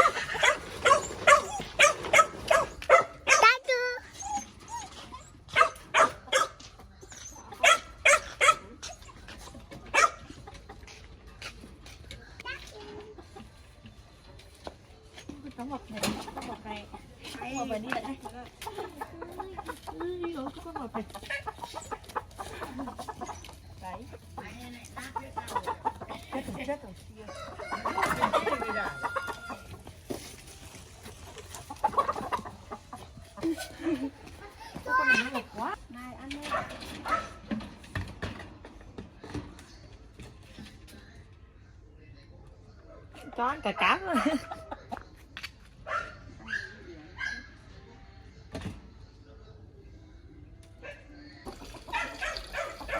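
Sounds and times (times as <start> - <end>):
dog barking: 0.0 - 4.0, 5.5 - 6.6, 7.6 - 8.8, 9.9 - 10.4, 36.5 - 37.4, 45.8 - 47.6, 51.9 - 52.9
chickens clucking and squawking: 0.0 - 41.3, 42.4 - 48.8, 49.8 - 52.9.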